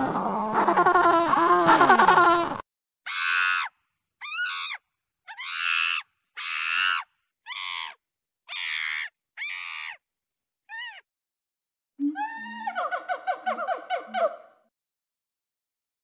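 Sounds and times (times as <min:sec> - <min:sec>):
monkey screaming: 0:00.0 - 0:10.0, 0:10.7 - 0:11.0.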